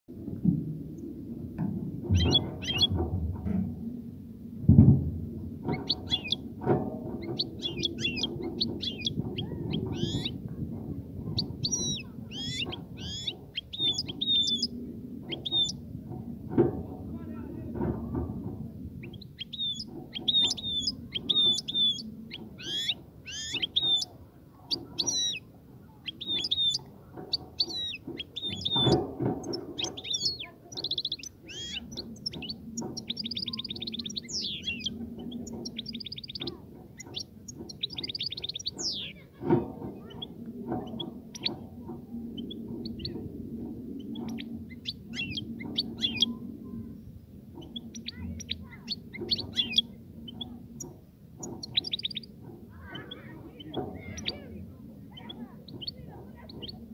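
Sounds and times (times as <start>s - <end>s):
low steady hum: 0.1s - 56.9s
sharp knocks: 0.3s - 3.9s, 4.6s - 14.7s, 26.3s - 46.1s
goldfinch twittering song: 2.1s - 3.0s, 5.6s - 6.4s, 7.2s - 10.4s, 11.3s - 15.8s, 19.0s - 25.4s, 26.0s - 39.2s, 40.0s - 41.7s, 44.0s - 46.4s, 47.6s - 54.4s, 55.1s - 56.8s.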